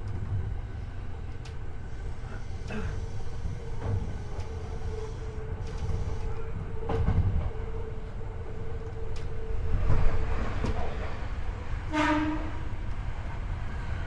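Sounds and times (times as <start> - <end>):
steady train hum: 0.0 - 14.0
train wheel and track rumble: 0.0 - 14.0
rail joint clack: 2.2 - 7.8, 8.5 - 14.0.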